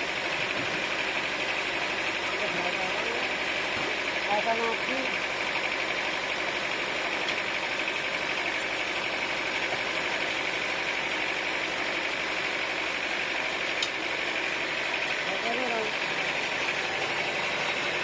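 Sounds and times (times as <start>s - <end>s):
sawmill machinery drone: 0.0s - 18.0s.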